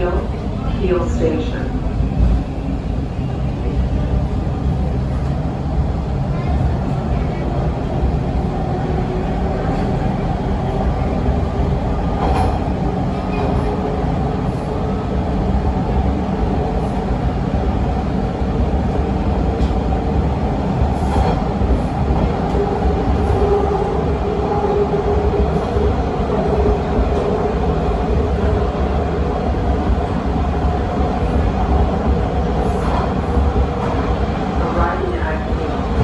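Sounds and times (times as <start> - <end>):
subway train wheels rumbling on rail: 0.0 - 36.0.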